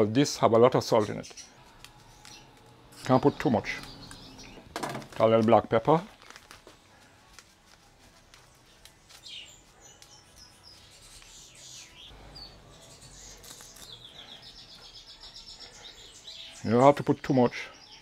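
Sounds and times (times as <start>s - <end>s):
birds chirping and whistling: 0.9s - 4.8s, 8.5s - 18.0s
paper packet rustling and tapping: 3.6s - 10.2s.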